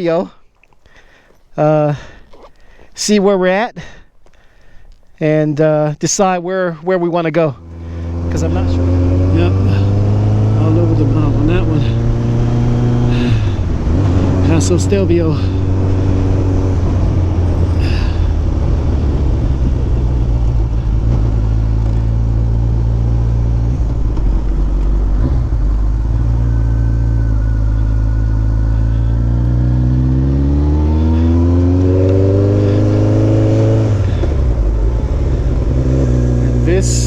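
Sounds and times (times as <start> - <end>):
motorcycle engine revving: 7.4 - 37.0.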